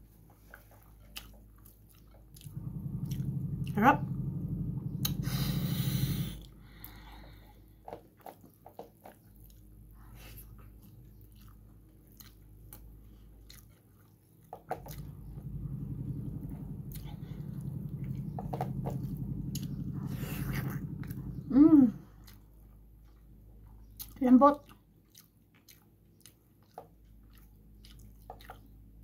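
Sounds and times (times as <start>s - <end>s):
chewing with wet smacks: 0.2s - 3.6s, 8.2s - 15.6s, 22.1s - 29.0s
low hum: 2.3s - 7.6s, 14.8s - 23.2s.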